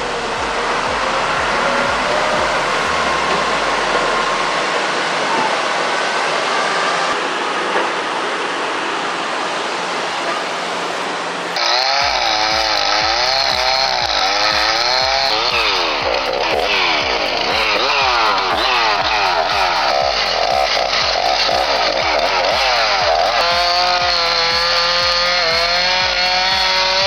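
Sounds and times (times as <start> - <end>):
steady rushing noise: 0.0 - 27.0
chainsaw engine revving: 11.6 - 27.0.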